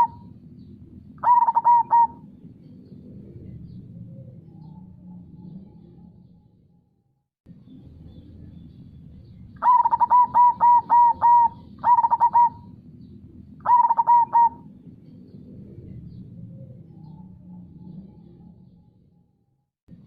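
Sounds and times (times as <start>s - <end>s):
dove cooing in staccato notes: 0.0s - 0.3s, 1.2s - 3.8s, 9.6s - 12.8s, 13.6s - 17.3s.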